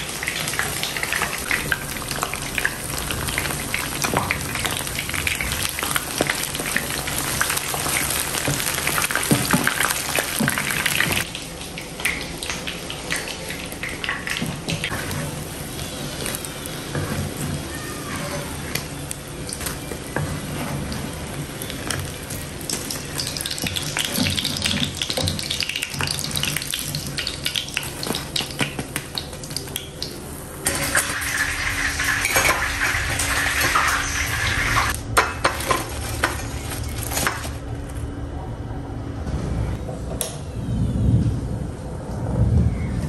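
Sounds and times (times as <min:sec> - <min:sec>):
fritters sizzling in hot oil: 0:00.0 - 0:37.0
utensils scraping a pan: 0:20.1 - 0:21.4, 0:23.6 - 0:26.6.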